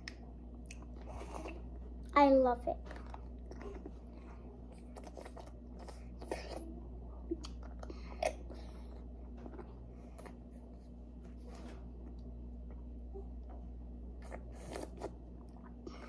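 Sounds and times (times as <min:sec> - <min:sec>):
child chewing and sucking: 0:00.0 - 0:02.0, 0:02.8 - 0:06.8, 0:07.4 - 0:10.9, 0:14.1 - 0:16.0.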